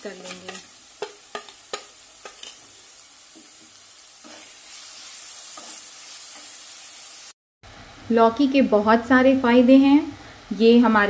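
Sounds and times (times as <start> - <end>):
masala sizzling in hot oil: 0.0 - 7.4
spatula scraping a pan: 0.2 - 7.1.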